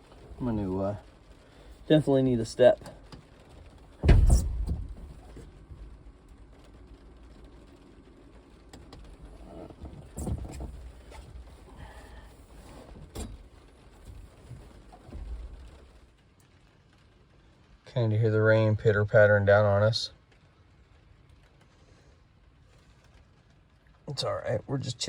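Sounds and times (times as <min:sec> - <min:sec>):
rain pattering: 0:00.0 - 0:25.0
heavy thump: 0:04.0 - 0:05.8
knocks and bumps: 0:04.0 - 0:05.9.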